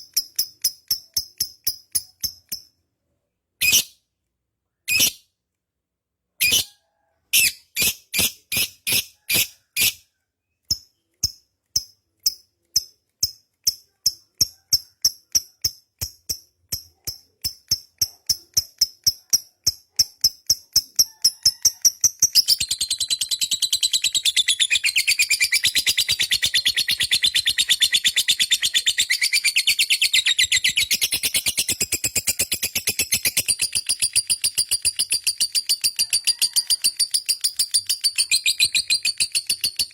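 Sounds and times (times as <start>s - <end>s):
lovebird chattering trill: 21.0s - 39.9s.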